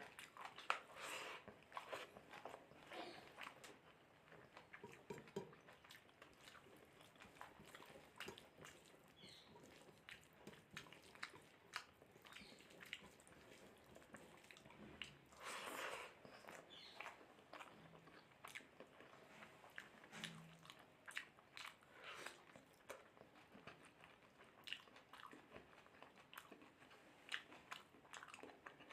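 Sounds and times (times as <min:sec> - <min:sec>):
chewing with mouth clicks: 0:00.0 - 0:28.9.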